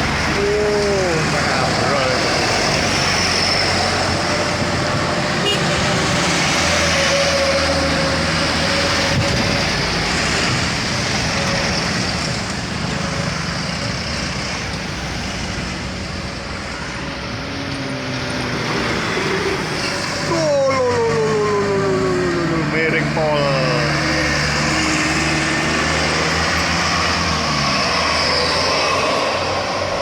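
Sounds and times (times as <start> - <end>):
heavy vehicle engine hum: 0.0 - 30.0
pitched sounds gliding downward: 18.4 - 29.6.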